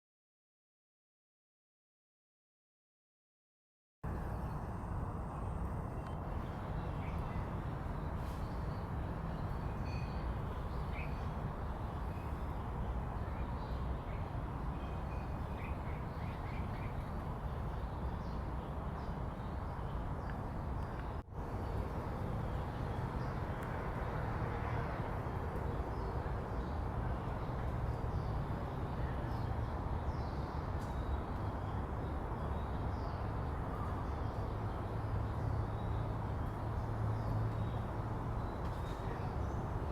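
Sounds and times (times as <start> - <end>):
city traffic rumble: 4.1 - 39.9.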